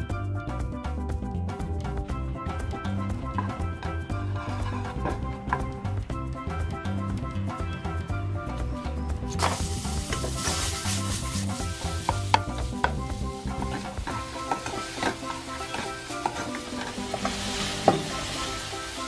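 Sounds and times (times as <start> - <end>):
background music: 0.0 - 19.0
meat sizzling in oil: 9.3 - 19.0.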